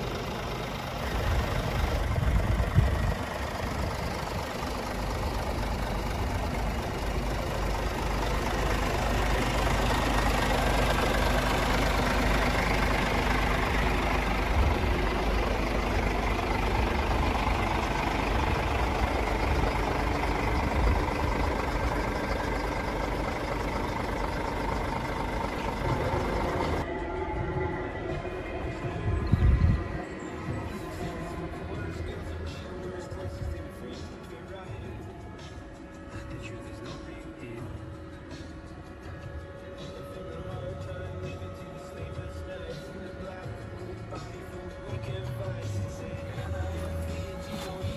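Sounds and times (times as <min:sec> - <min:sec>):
truck diesel engine running: 0:00.0 - 0:47.9.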